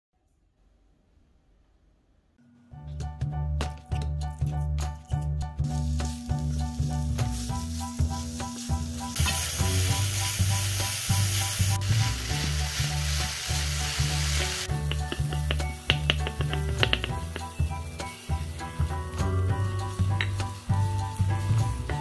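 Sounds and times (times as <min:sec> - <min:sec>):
background music: 0:02.4 - 0:22.0
tofu sizzling in a wok: 0:05.6 - 0:22.0
spatula clicking against pan: 0:14.7 - 0:17.6.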